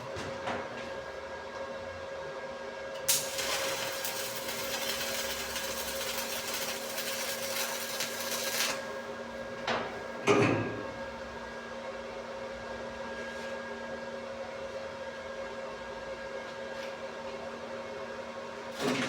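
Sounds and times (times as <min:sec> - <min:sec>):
welding arc crackling: 0:03.1 - 0:08.9.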